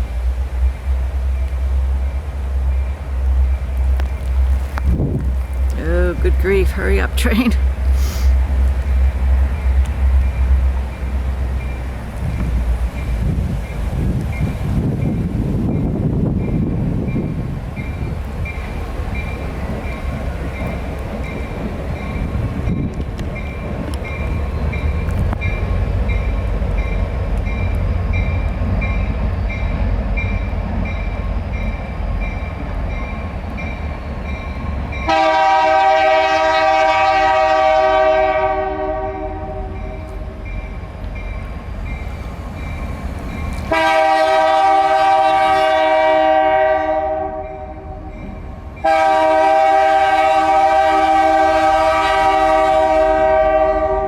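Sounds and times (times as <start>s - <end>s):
train rumbling past: 0.0s - 54.0s
locomotive air horn blasts: 35.1s - 40.2s, 43.7s - 47.7s, 48.8s - 54.0s.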